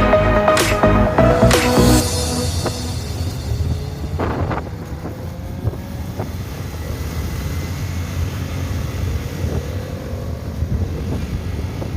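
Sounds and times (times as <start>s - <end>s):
wind buffeting microphone: 9.0s - 11.9s.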